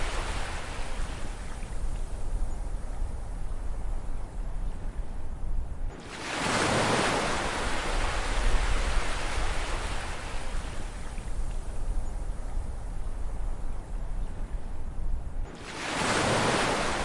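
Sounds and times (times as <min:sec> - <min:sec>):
ocean wave breaking: 0:15.5 - 0:17.0.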